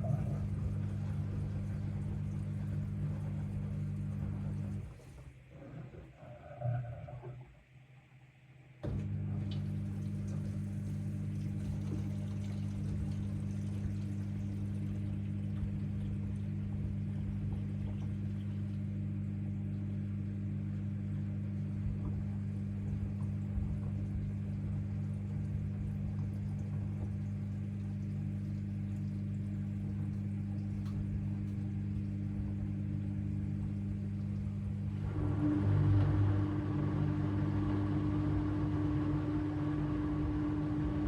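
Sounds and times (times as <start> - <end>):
washing machine drain pump humming: 0.0 - 41.0.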